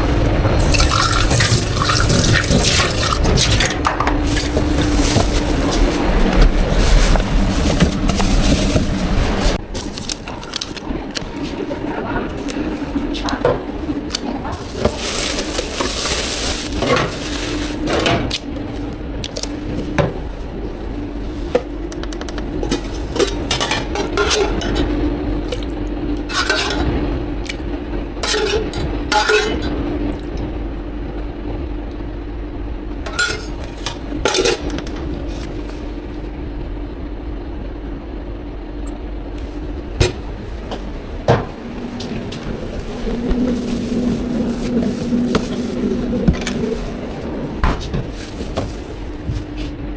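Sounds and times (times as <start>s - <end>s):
steady machine hum: 0.0s - 49.9s
utensils and cups clinking: 0.6s - 5.9s, 22.6s - 24.9s, 26.3s - 26.9s, 28.2s - 29.7s, 33.1s - 34.8s.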